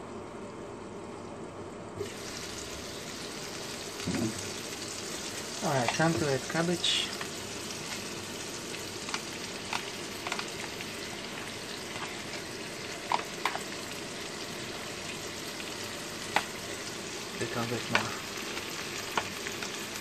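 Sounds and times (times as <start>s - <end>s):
food sizzling in frying pan: 2.0s - 20.0s.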